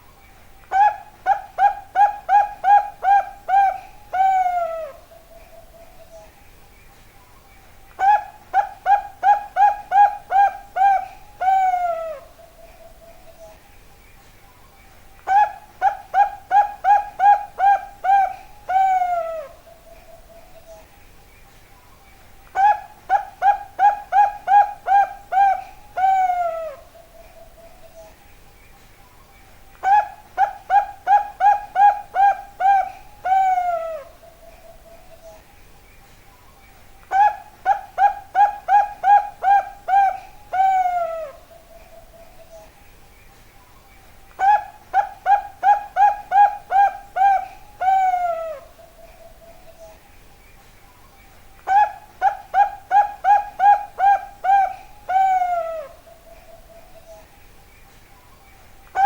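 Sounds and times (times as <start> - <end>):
dove cooing: 0.7 - 6.2, 8.0 - 13.5, 15.2 - 20.8, 22.5 - 28.1, 29.8 - 35.4, 37.1 - 42.7, 44.4 - 50.0, 51.6 - 57.3.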